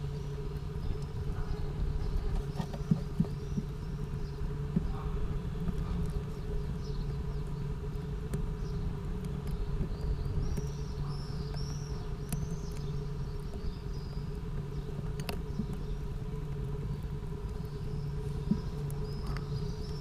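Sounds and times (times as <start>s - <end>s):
low mechanical hum: 0.0s - 20.0s
faint clicks: 11.4s - 13.7s.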